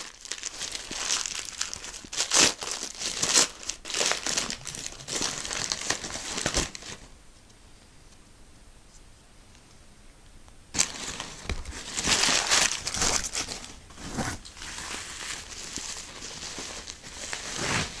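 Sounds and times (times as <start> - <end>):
packaging crinkling and rustling: 0.0 - 7.1, 10.8 - 18.0.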